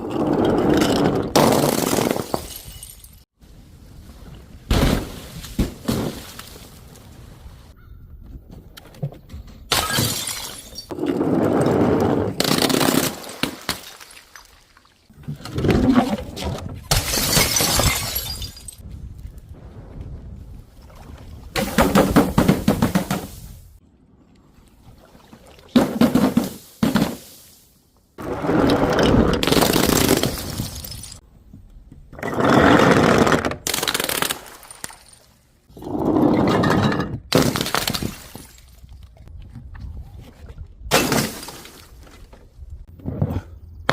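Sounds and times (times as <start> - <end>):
glass bottles breaking: 1.4 - 3.2, 9.7 - 10.9, 12.4 - 14.7, 16.9 - 18.8, 29.4 - 31.2, 36.7 - 38.9, 40.9 - 41.8.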